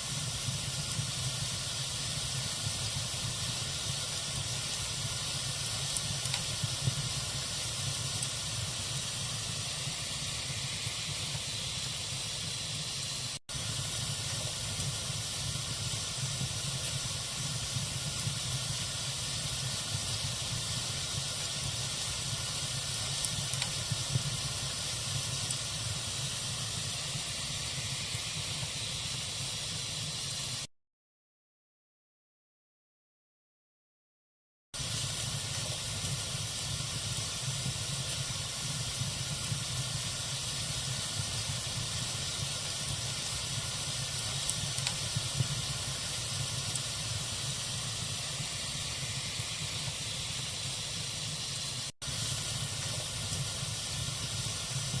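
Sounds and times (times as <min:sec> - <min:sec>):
fire crackling and popping: 0:00.0 - 0:29.6, 0:34.8 - 0:55.0
hiss of flame: 0:00.0 - 0:30.7, 0:34.8 - 0:55.0.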